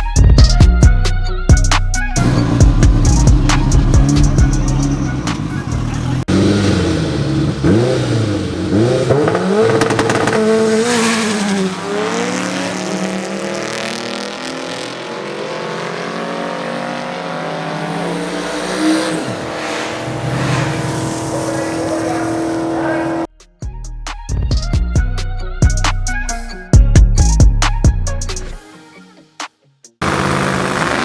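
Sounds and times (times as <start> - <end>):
drag race car engines revving: 2.2 - 23.3, 30.0 - 31.0.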